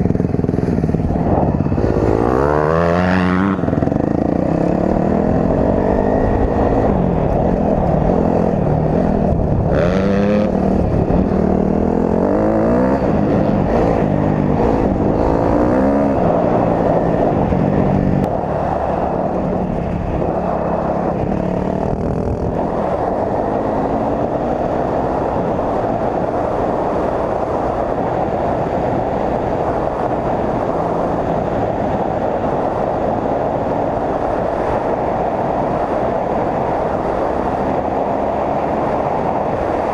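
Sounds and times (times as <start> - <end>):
dirt bike engine revving: 0.0 - 26.6.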